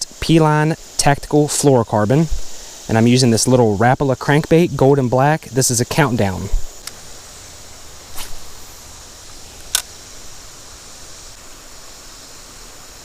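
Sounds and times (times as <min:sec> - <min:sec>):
creek water flowing: 0:00.0 - 0:13.0.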